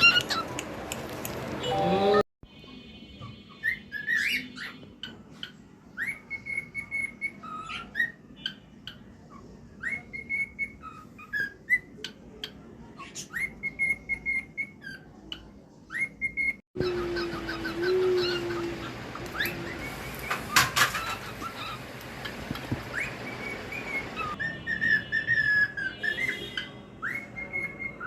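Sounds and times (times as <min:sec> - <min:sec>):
bird chirps and clicks: 0:00.0 - 0:01.6, 0:16.8 - 0:24.4
cockatiel whistling: 0:09.8 - 0:11.9, 0:15.9 - 0:28.0.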